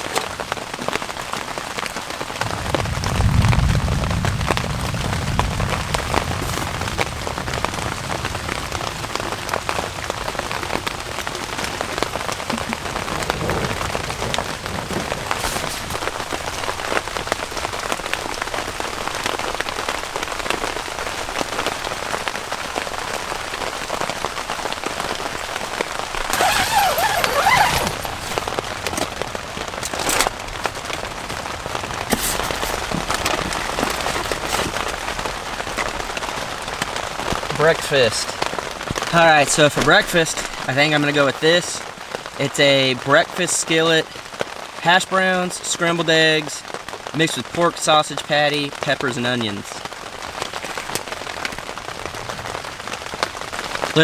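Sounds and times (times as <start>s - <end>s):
steady rain: 0.0s - 54.0s
low rumble of thunder: 2.4s - 18.0s.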